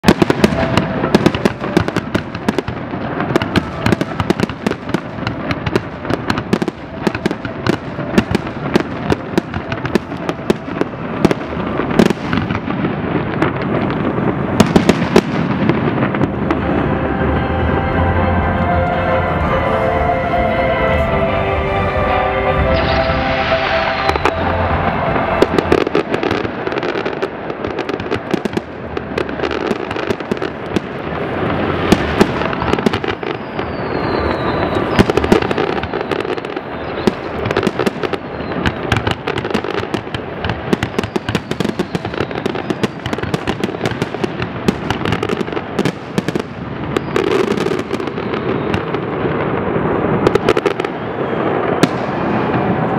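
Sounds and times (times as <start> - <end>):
fireworks bangs and crackling: 0.0 - 52.9
falling firework whistles: 22.7 - 28.5, 31.8 - 52.9.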